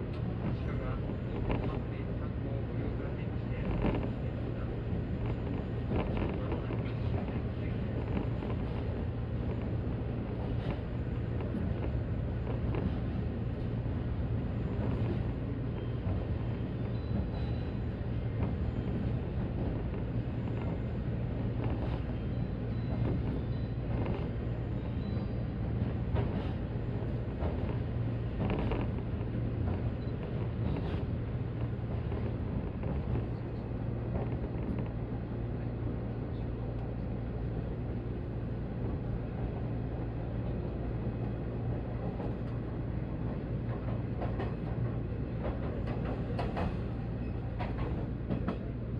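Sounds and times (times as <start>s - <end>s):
train rumbling inside passenger car: 0.0s - 48.9s.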